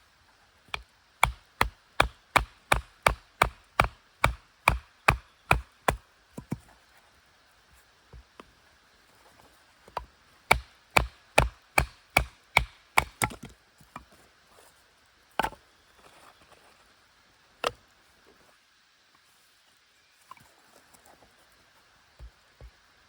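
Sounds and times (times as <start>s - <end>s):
blade chopping wood: 1.2s - 6.6s, 10.5s - 13.6s.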